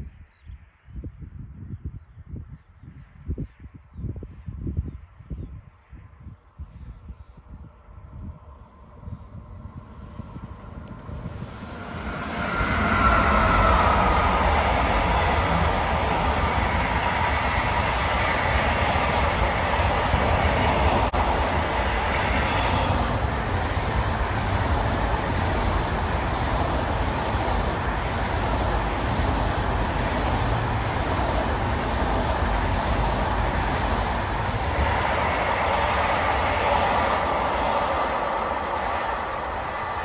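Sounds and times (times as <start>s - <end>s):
high-speed electric train passing: 5.6s - 40.0s.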